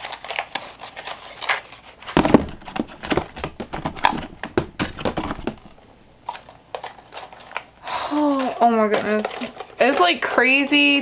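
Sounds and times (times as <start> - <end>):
plastic packaging rustling: 0.0 - 10.4
loud knock: 2.2 - 5.8.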